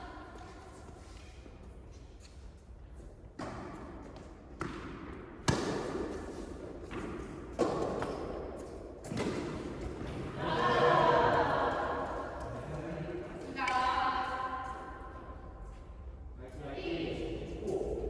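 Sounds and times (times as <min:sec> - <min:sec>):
tennis balls struck by rackets: 0:03.4 - 0:10.2
tennis balls bouncing on court: 0:03.4 - 0:10.3.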